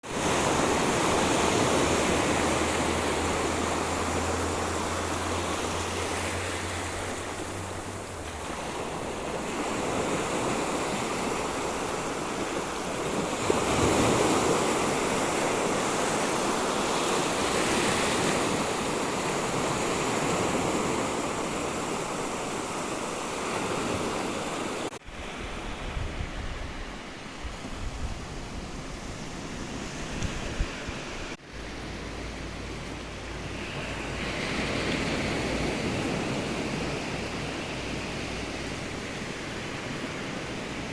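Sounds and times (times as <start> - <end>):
sea surf washing on beach: 0.0 - 40.9.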